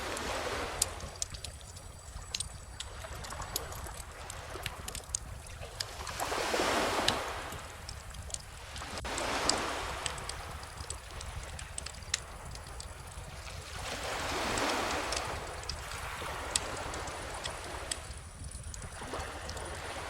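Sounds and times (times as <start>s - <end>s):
ocean waves washing in: 0.0s - 1.7s, 5.8s - 20.0s
bonfire crackling and popping: 0.0s - 20.0s.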